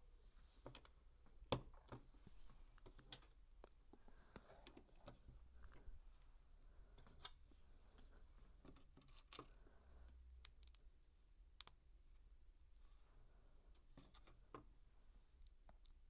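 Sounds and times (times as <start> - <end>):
plastic bricks clicking: 10.4 - 10.8.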